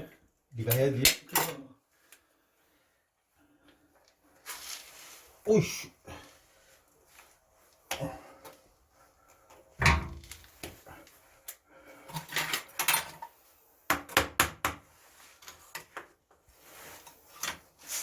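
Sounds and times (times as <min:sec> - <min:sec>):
objects being handled: 0:06.7 - 0:13.5, 0:14.9 - 0:18.0.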